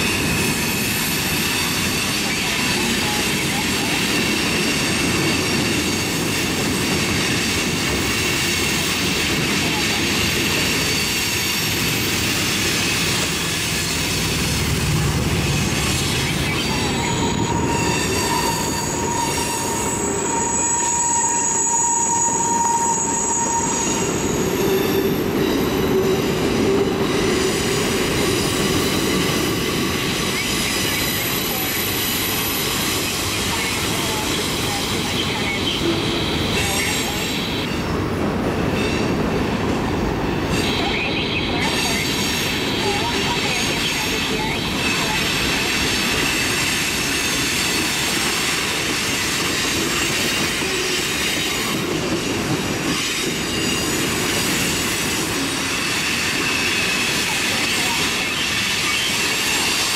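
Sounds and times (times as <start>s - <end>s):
steel wheels rumbling on rail: 0.0s - 59.9s
high-pitched wheel squeal: 15.5s - 27.8s.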